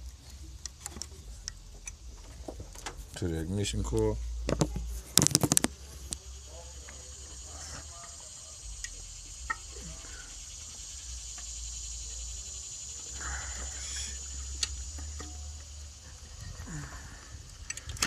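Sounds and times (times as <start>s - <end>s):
high hiss: 0.0s - 18.0s
steady low hum: 0.0s - 18.0s
sharp clicks of car parts: 17.6s - 18.0s.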